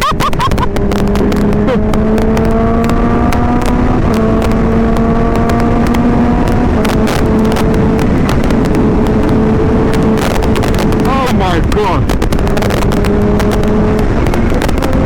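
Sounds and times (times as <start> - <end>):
wind rushing on microphone: 0.0 - 15.0
motorcycle engine pulling: 0.1 - 15.0.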